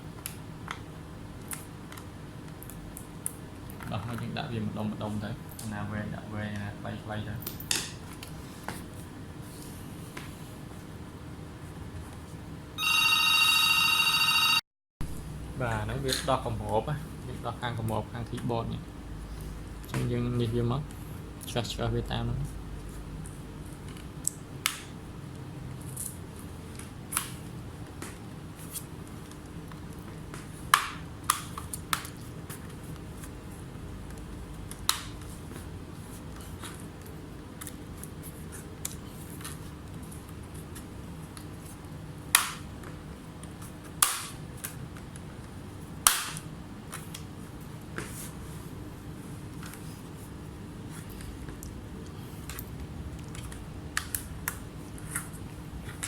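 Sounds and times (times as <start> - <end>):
steady low hum: 13.8 - 31.2.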